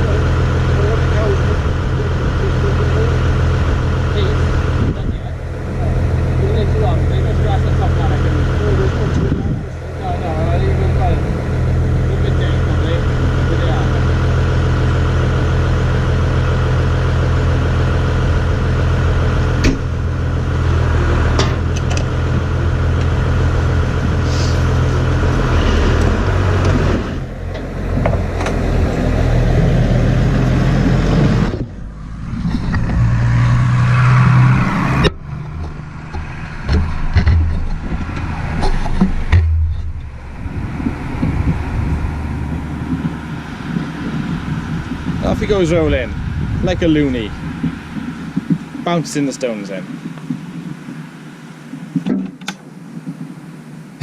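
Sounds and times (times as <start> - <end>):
tractor engine running: 0.0 - 54.0
sharp knocks: 35.0 - 40.2.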